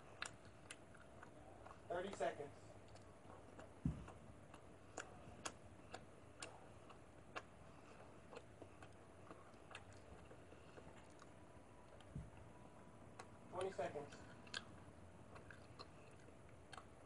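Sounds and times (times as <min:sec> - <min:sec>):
soft low thump: 0:03.8 - 0:04.1.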